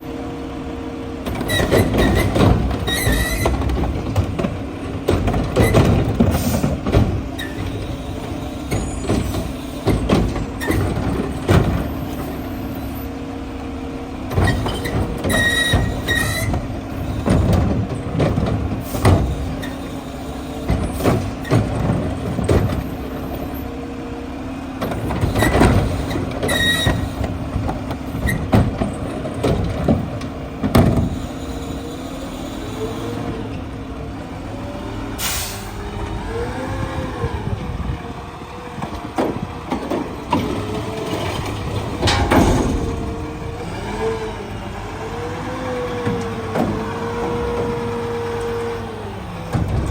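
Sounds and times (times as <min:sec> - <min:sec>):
garbage truck engine running: 0:00.0 - 0:49.9
metal clanks and bangs: 0:39.1 - 0:44.1.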